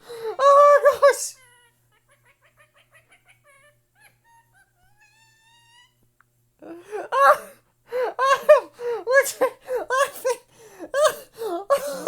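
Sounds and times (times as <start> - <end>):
person laughing loudly: 2.0 - 5.5.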